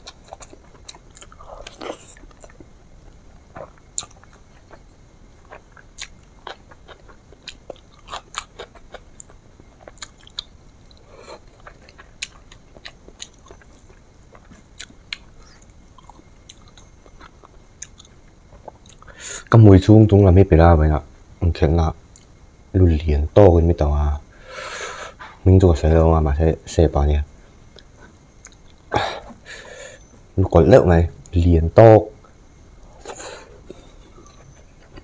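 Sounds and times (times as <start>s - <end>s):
person chewing: 0.0s - 19.2s.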